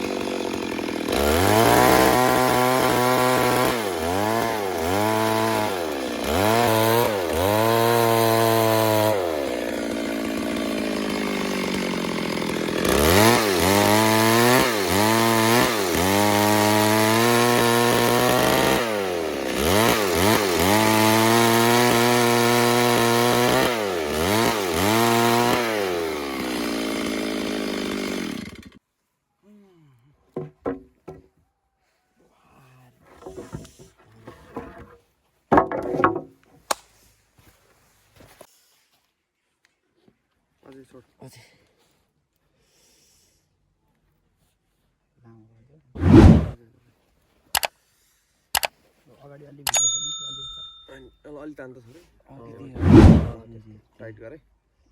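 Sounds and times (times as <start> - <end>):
chainsaw revving: 0.0 - 28.8, 46.0 - 46.6, 52.8 - 53.4.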